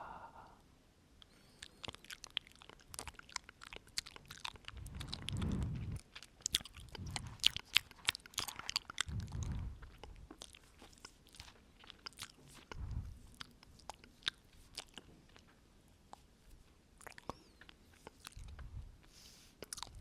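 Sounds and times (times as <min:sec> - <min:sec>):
wet mouth clicks and smacks: 0:01.2 - 0:16.3, 0:17.0 - 0:18.7, 0:19.6 - 0:20.0
soft breaths into microphone: 0:04.7 - 0:07.6, 0:09.1 - 0:10.4, 0:12.5 - 0:13.4, 0:18.4 - 0:20.0.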